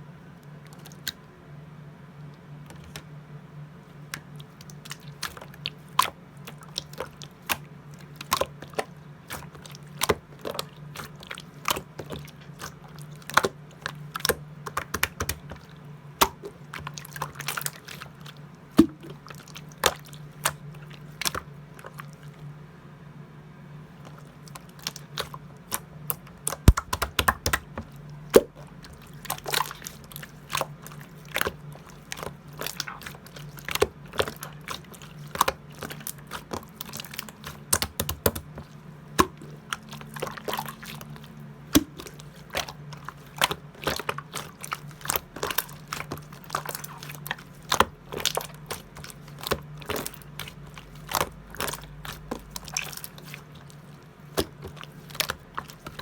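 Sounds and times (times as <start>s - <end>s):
faint low hum: 0.0s - 56.0s
slime squeezed by hand: 26.4s - 27.6s
air bubbles popping: 26.6s - 27.8s.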